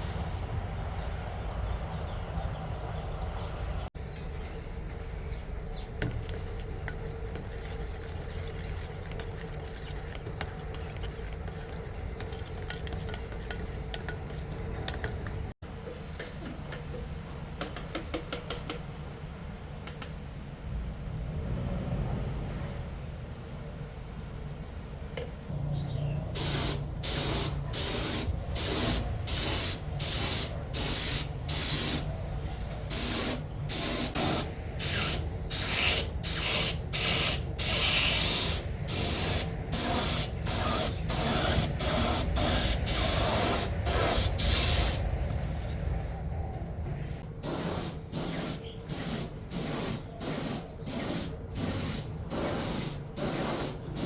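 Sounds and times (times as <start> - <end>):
spray hissing in short bursts: 26.4 - 32.1, 32.9 - 45.8, 47.3 - 54.0.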